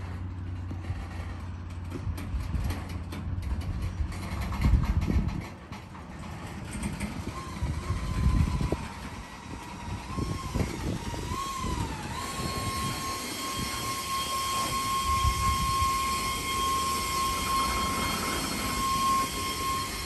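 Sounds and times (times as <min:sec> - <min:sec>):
train wheels rumbling on rail: 0:00.0 - 0:20.0
high wavering whine: 0:07.2 - 0:20.0.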